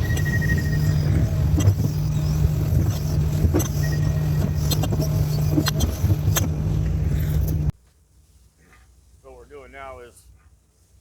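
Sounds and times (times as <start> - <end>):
excavator diesel engine running: 0.0 - 7.7
sharp clicks and knocks: 0.0 - 7.7.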